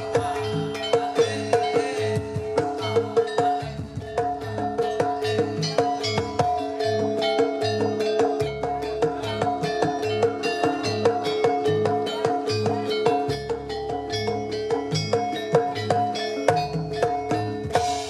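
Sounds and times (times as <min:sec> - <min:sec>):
drums: 0:00.0 - 0:18.0
struck metal percussion: 0:00.0 - 0:18.0.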